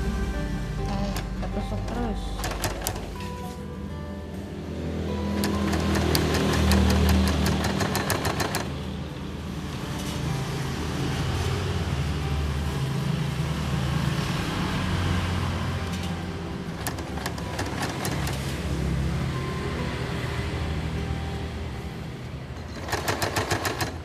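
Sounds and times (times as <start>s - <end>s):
sewing machine needle clicks: 2.4s - 3.1s, 5.4s - 8.7s, 22.7s - 24.0s.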